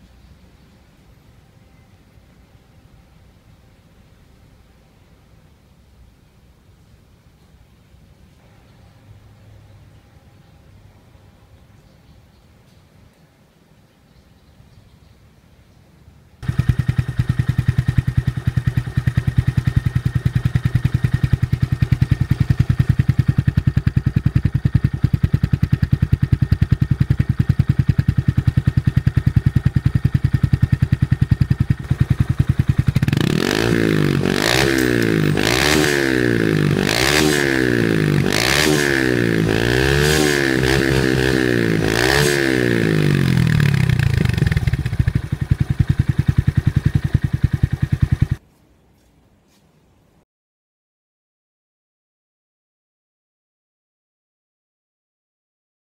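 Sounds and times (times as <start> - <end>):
motorcycle engine idling and revving: 16.4 - 48.4.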